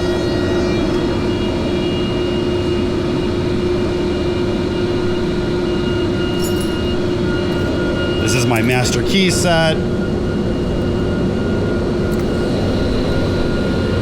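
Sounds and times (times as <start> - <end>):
air compressor running: 12.1 - 14.0.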